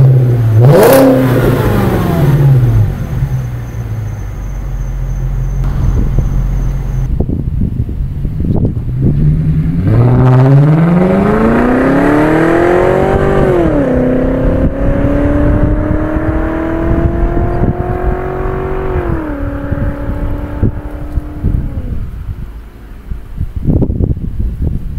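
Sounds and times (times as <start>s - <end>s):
car exhaust accelerating: 0.0s - 24.9s.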